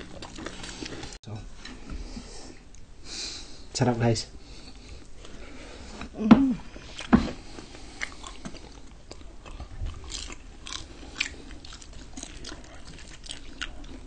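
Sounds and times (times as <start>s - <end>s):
people chewing crispy food: 0.0s - 1.2s, 4.8s - 14.0s
person humming: 6.1s - 6.7s.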